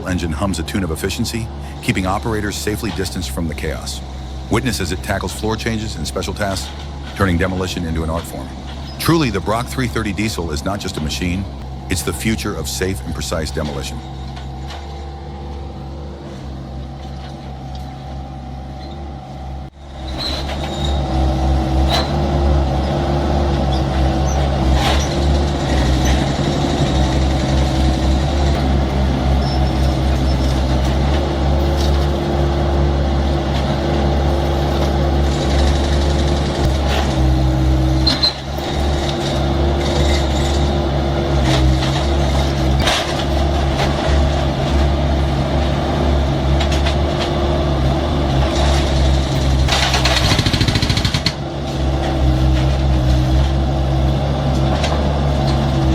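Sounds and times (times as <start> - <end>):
diesel engine running: 0.0 - 55.9
sharp knocks and clanks: 41.4 - 45.0.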